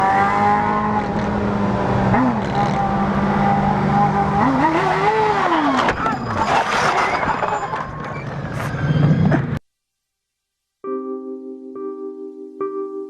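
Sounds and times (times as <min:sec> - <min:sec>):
vehicle engine revving: 0:00.0 - 0:06.9.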